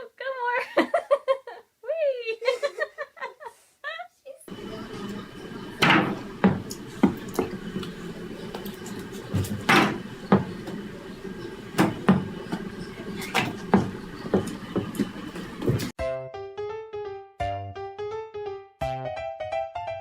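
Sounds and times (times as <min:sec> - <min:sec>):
steady background hum: 0:04.5 - 0:15.9
knocks and thumps: 0:05.8 - 0:08.0, 0:08.6 - 0:10.9, 0:11.7 - 0:15.9
piano music: 0:15.8 - 0:20.0.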